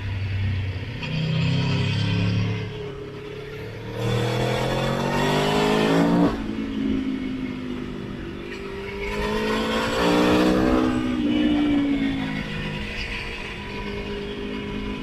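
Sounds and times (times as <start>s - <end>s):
motorcycle engine accelerating: 0.8s - 7.0s.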